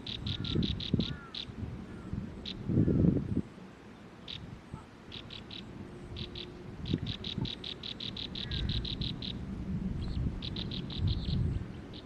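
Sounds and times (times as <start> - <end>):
bird chirping rapidly: 0.0 - 1.6, 4.2 - 4.5, 5.1 - 9.4, 10.0 - 12.0.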